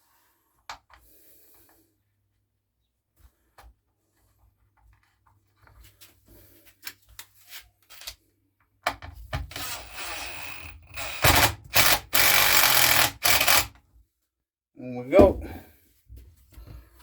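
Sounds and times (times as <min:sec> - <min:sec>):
clatter and rubbing of parts: 0:09.0 - 0:13.8.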